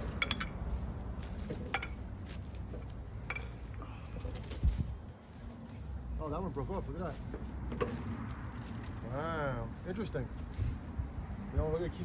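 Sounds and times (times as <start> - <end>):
light metallic clinks and knocks: 0.0 - 5.8.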